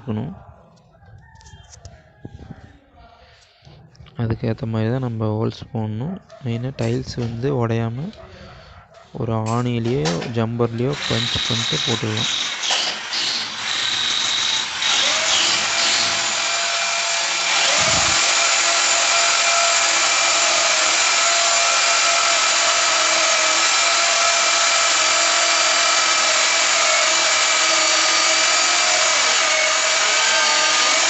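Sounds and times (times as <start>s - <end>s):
electric drill drilling into tile: 10.9s - 31.0s.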